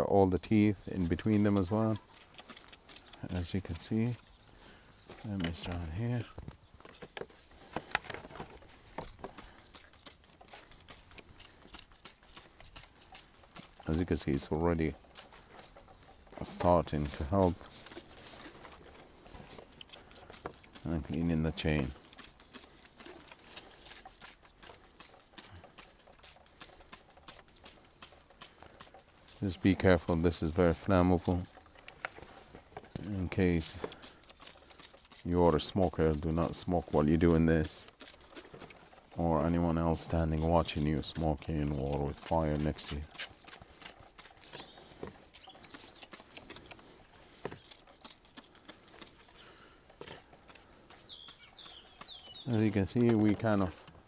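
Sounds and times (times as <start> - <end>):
trigger sprayer squirting: 0.7 - 54.0
faint bird chirps: 50.4 - 52.6.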